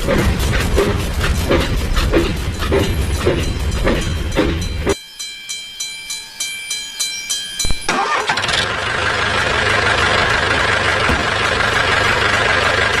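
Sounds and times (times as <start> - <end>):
motor running steadily: 8.6 - 13.0.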